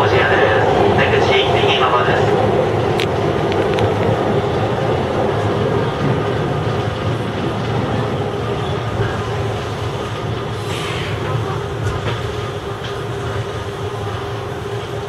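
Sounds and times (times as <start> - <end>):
electric train wheels rumbling on rail: 0.0 - 15.0.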